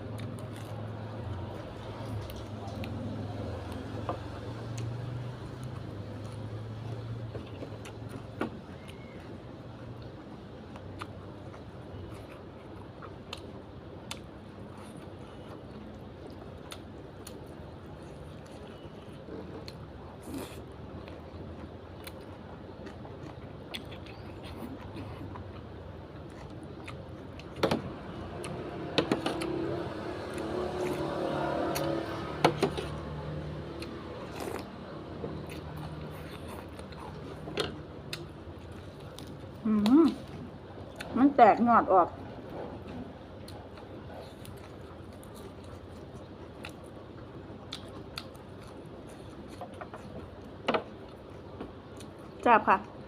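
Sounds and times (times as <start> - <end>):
vehicle engine hum: 0.0 - 21.9, 24.6 - 40.9
person chewing: 0.1 - 1.2, 10.0 - 27.6, 28.3 - 41.1, 43.3 - 52.4.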